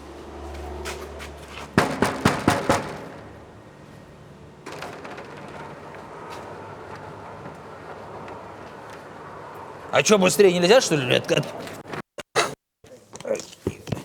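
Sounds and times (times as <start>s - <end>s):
knocks on a door: 1.8s - 3.3s.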